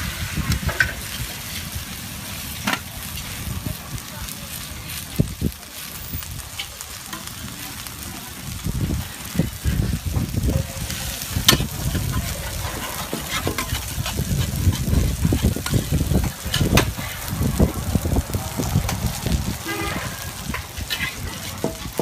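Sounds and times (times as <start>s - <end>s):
food sizzling: 0.0s - 22.0s
low thumping rumble: 13.6s - 20.9s.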